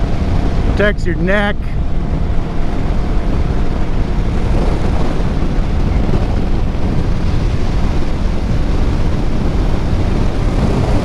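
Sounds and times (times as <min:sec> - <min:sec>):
motorcycle engine running: 0:00.0 - 0:11.0
wind rushing over microphone: 0:00.0 - 0:11.0.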